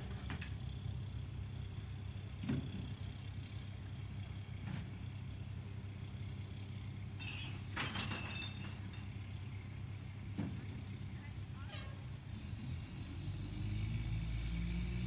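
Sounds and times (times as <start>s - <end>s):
vehicle engine idling: 0.0s - 13.1s.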